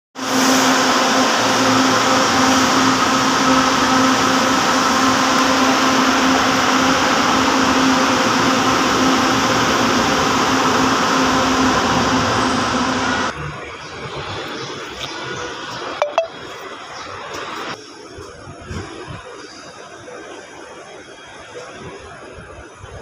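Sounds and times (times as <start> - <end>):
rushing noise: 0.2 - 13.4
electric train humming: 0.2 - 14.5.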